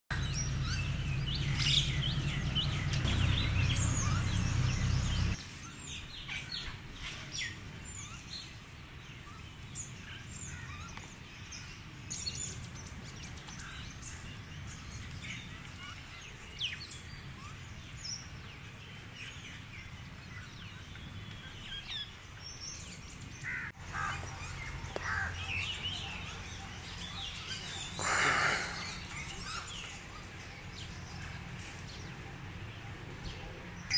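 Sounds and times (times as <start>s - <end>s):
low steady rumble: 0.1s - 5.4s
small birds chirping: 0.1s - 33.9s.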